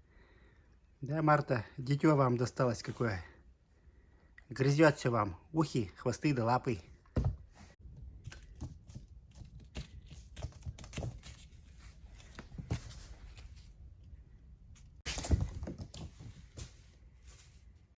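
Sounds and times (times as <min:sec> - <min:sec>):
cats play-fighting scuffling: 0:07.0 - 0:14.1, 0:14.7 - 0:17.9.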